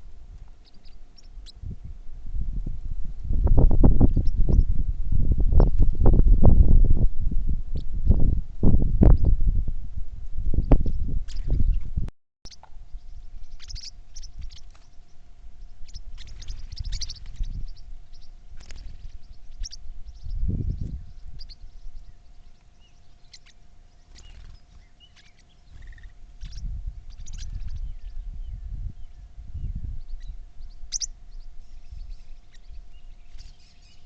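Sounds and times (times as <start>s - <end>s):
birds chirping: 0.0s - 1.8s, 3.6s - 4.8s, 12.5s - 34.0s
low rumbling: 0.0s - 25.0s
faint steady hum: 0.0s - 34.0s.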